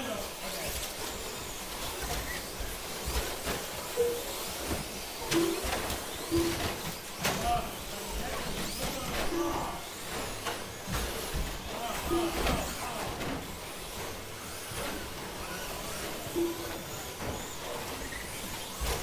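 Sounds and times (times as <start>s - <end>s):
rc truck motors whining: 0.0s - 19.0s
short beeps: 4.0s - 4.5s, 5.3s - 6.8s, 12.1s - 12.6s, 16.4s - 16.9s.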